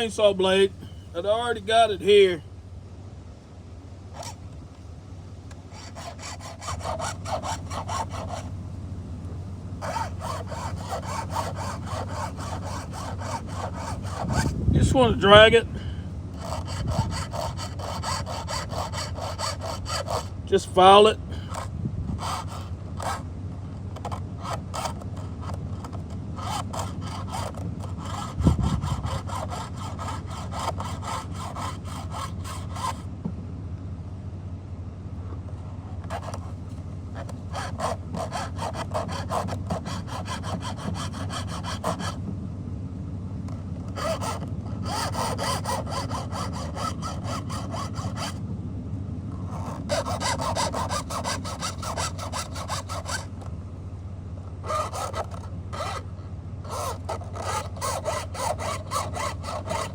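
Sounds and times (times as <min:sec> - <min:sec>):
low hum: 0:00.0 - 0:59.9
file rasping on chain: 0:04.1 - 0:04.4, 0:05.7 - 0:08.5, 0:09.8 - 0:15.6, 0:16.4 - 0:23.2, 0:24.0 - 0:33.1, 0:36.1 - 0:36.5, 0:37.2 - 0:42.2, 0:43.9 - 0:48.4, 0:49.4 - 0:53.4, 0:54.6 - 0:59.9.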